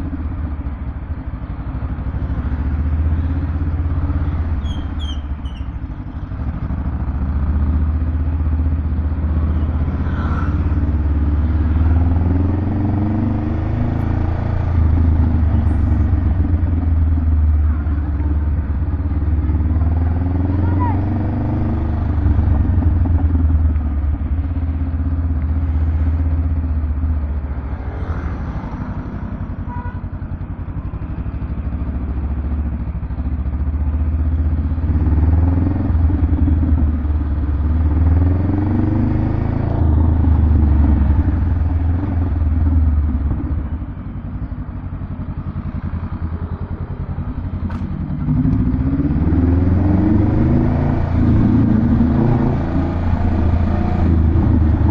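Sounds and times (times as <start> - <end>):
motorcycle engine revving: 1.9 - 54.9.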